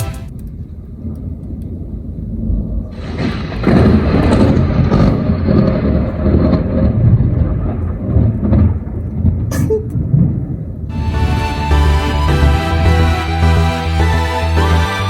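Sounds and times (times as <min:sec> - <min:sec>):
thunder rolling: 0:01.7 - 0:13.0.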